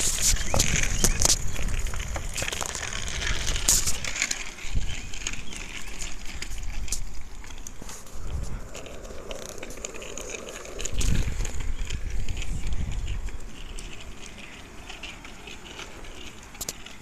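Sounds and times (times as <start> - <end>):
bicycle clicks and rattles: 0.0 - 17.0
wind rumbling on microphone: 0.0 - 17.0.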